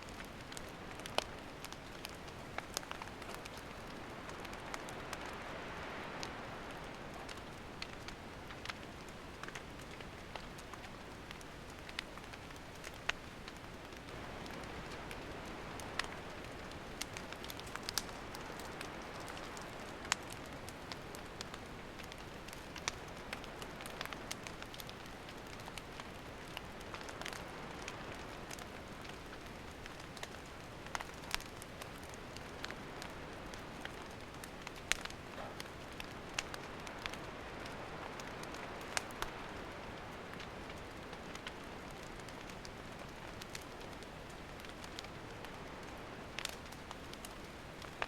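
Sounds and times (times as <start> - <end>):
campfire hissing: 0.0 - 48.0
firewood popping and snapping: 0.1 - 48.0.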